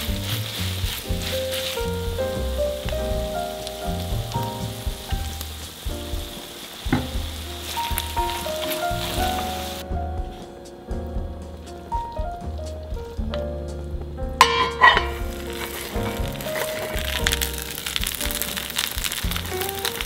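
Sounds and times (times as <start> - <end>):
rice sizzling in a wok: 0.0 - 9.9, 14.4 - 20.0
soft background music: 0.0 - 20.0
sharp knock: 6.9 - 7.4.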